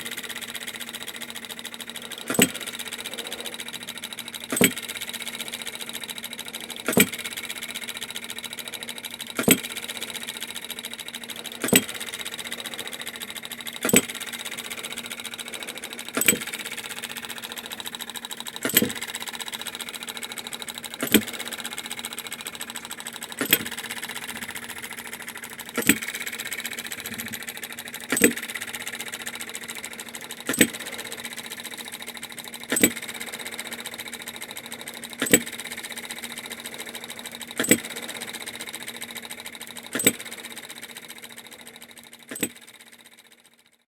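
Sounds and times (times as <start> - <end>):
small machine humming: 0.0 - 43.9
sharp click: 18.6 - 19.1, 21.0 - 21.4, 23.4 - 24.9, 25.8 - 27.4, 28.1 - 28.7, 32.7 - 33.1, 35.2 - 35.6, 37.6 - 38.0, 39.9 - 40.3.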